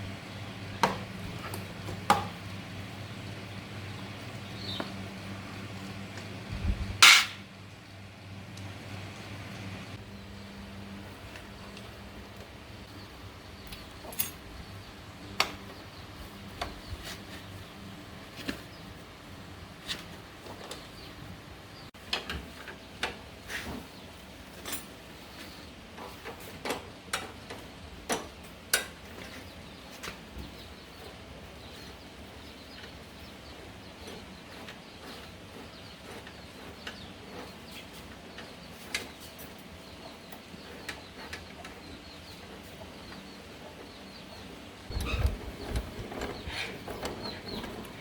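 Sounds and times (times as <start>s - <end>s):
clicks and knocks of hand work: 7.0s - 7.4s, 22.0s - 31.2s.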